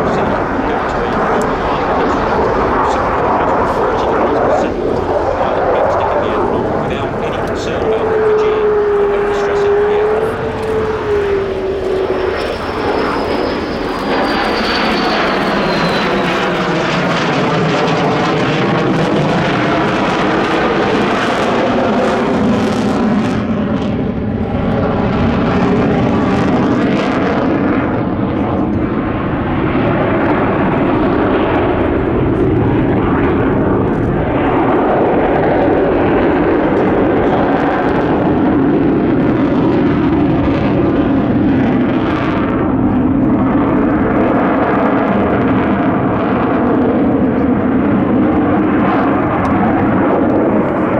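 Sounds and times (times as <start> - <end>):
jet whine falling in pitch: 0.0 - 28.3
fighter jet engines roaring: 0.0 - 50.9.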